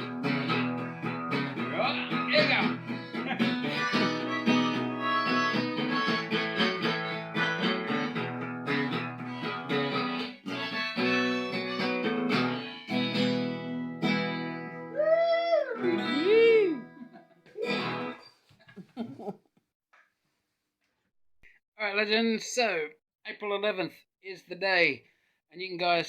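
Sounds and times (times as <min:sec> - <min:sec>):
harmonica playing: 0:00.0 - 0:15.0, 0:15.7 - 0:18.2
acoustic guitar: 0:00.0 - 0:18.5.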